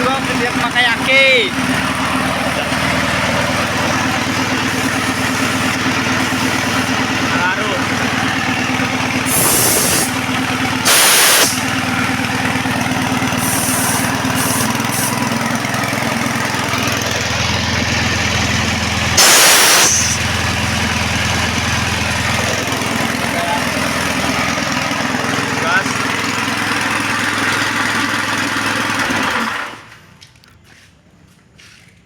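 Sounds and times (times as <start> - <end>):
air compressor engine running: 0.0 - 30.2
compressed air hissing: 4.6 - 6.9, 9.2 - 10.2, 10.8 - 11.7, 13.4 - 15.2, 19.2 - 20.3.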